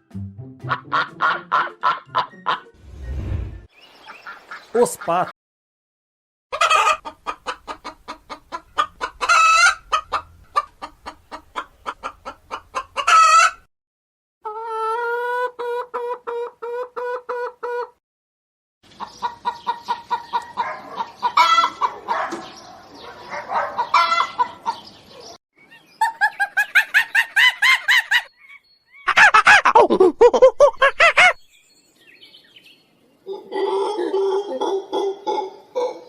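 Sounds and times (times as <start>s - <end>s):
chickens clucking: 0.7s - 2.7s, 6.5s - 13.7s, 14.4s - 18.0s, 18.9s - 31.4s, 33.2s - 36.0s.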